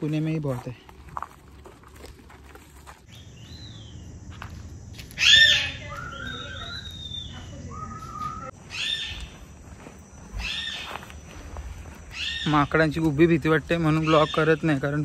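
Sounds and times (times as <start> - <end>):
whistled bird notes: 5.2 - 9.3.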